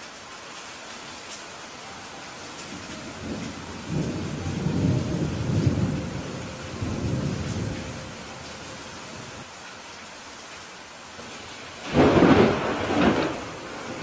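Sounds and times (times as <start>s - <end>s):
steady rain: 0.0s - 14.0s
thunder rumbling: 2.6s - 9.4s, 11.3s - 14.0s.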